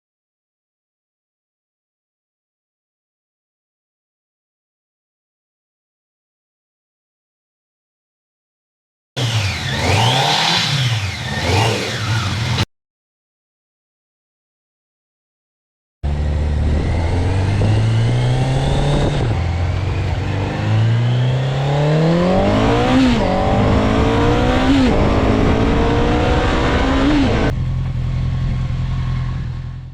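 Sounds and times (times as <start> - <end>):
motorcycle engine accelerating: 9.2 - 12.7, 16.0 - 29.9.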